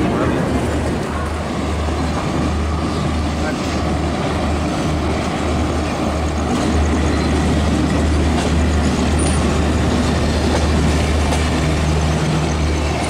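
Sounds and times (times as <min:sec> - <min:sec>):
train wheels rolling on track: 0:00.0 - 0:13.0.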